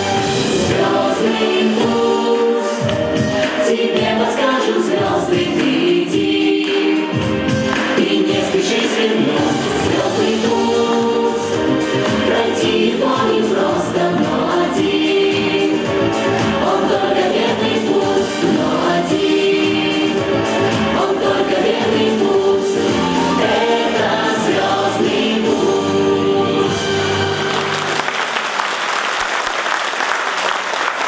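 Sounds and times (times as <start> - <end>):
group singing in chorus: 0.0 - 28.0
musical accompaniment: 0.0 - 28.7
audience applause: 27.2 - 31.0.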